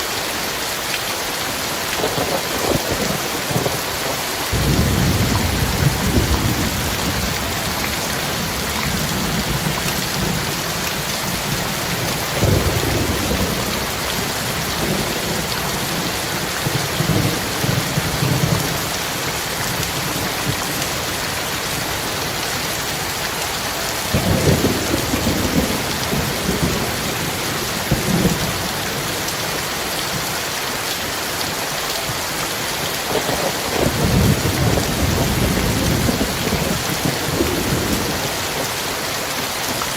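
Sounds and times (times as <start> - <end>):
heavy rain falling: 0.0 - 39.9
thunder rumbling: 2.0 - 22.4, 24.0 - 29.0, 33.1 - 38.6.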